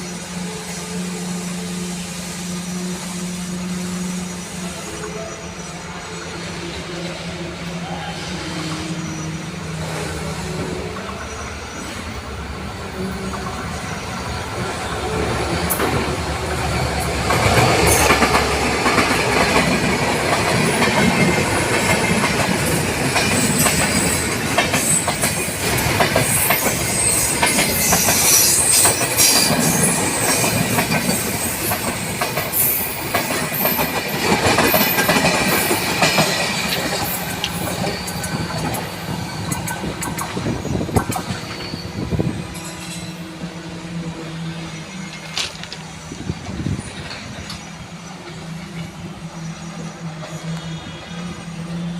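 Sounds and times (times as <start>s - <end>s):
wheels squealing on rails: 0.0s - 51.9s
train wheels clattering on rails: 13.0s - 43.6s, 44.5s - 51.9s.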